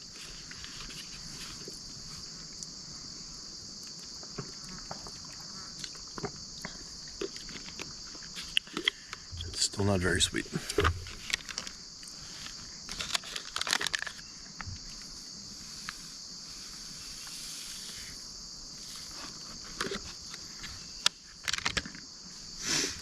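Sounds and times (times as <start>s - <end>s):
high insect chorus: 0.0s - 23.0s
packaging rustling and clicking: 12.9s - 14.2s.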